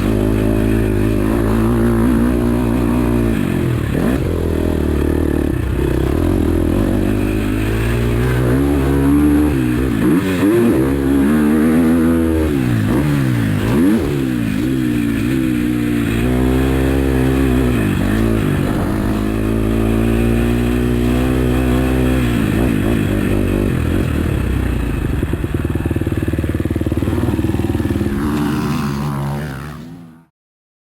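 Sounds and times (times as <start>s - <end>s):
motocross engine revving: 0.0s - 30.3s.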